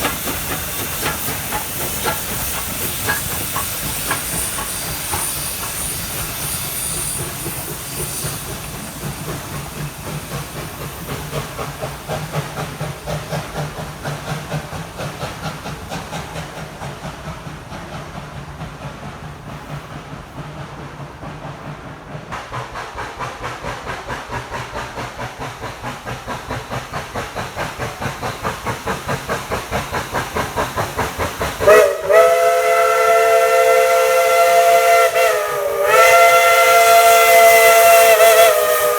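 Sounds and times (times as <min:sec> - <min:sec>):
steam hissing: 0:00.0 - 0:38.9
steam locomotive chuffing: 0:00.0 - 0:38.9
steam chime whistle blast: 0:00.8 - 0:09.6, 0:31.7 - 0:38.9.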